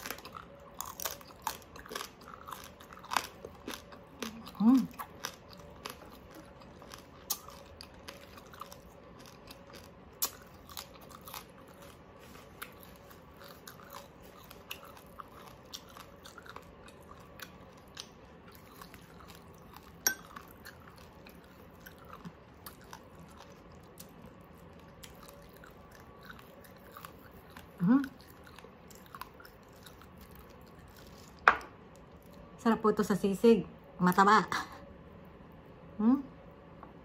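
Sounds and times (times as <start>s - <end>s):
person chewing crispy pork: 0.0s - 32.6s.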